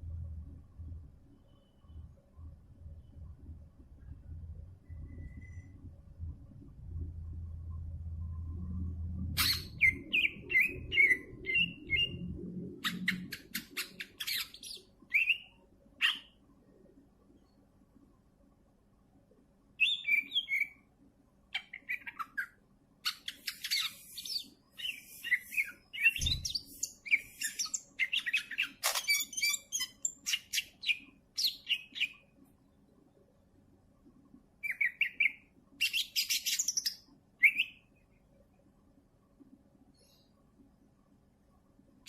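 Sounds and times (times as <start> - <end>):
bird chirping and whistling: 9.4 - 12.2, 12.8 - 16.3, 19.8 - 20.8, 23.2 - 32.1, 34.6 - 37.8.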